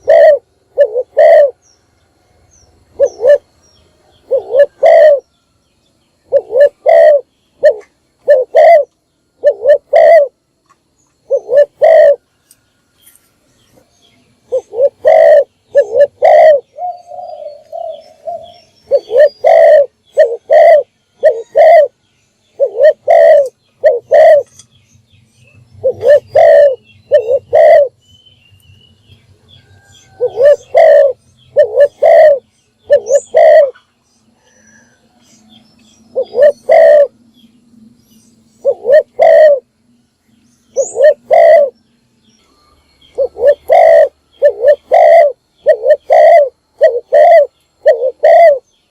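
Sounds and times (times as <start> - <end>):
dove cooing: 0.0 - 1.6, 2.9 - 5.3, 6.2 - 10.4, 11.2 - 12.3, 14.4 - 24.6, 25.8 - 28.0, 29.7 - 35.3, 36.1 - 37.2, 38.5 - 39.7, 40.7 - 41.8, 43.1 - 48.7.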